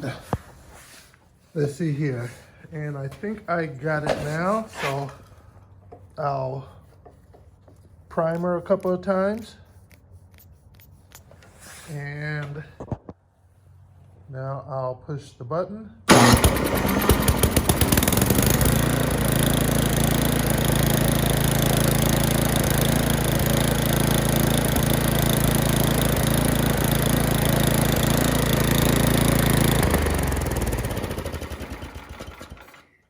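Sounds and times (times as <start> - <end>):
electric starter: 16.1 - 33.0
snowblower engine running: 16.1 - 33.0.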